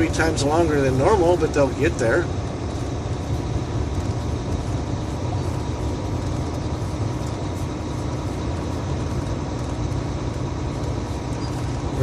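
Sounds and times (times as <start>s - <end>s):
truck engine and tyre drone: 0.0s - 12.0s.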